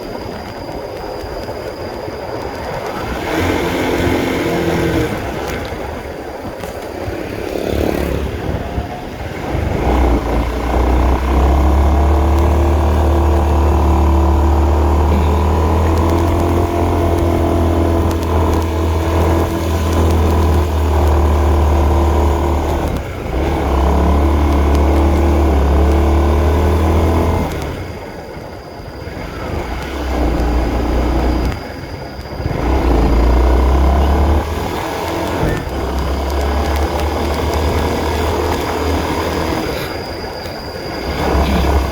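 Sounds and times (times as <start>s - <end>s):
motorcycle engine running under load: 2.5s - 41.9s.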